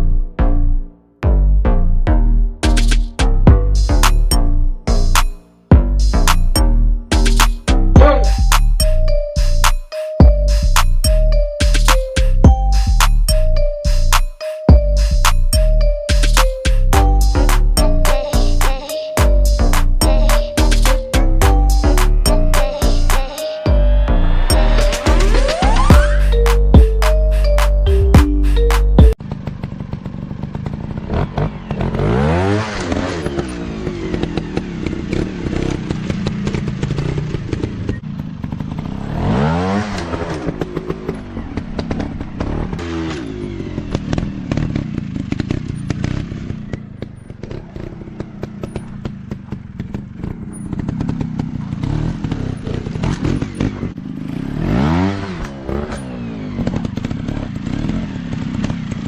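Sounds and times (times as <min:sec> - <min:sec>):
dirt bike engines revving: 0:30.4 - 0:59.0.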